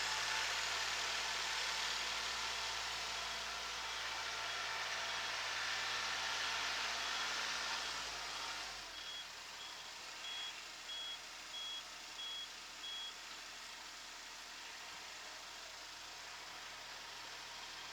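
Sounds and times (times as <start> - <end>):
reversing buzzer beeping: 9.0 - 9.2, 10.2 - 13.1.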